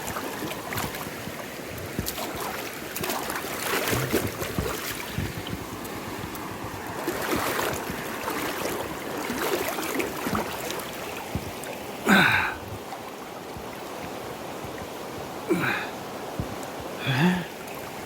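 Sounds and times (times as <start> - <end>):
river water rushing: 0.0 - 18.0
person grunting: 12.1 - 12.6, 15.5 - 15.9, 17.0 - 17.5.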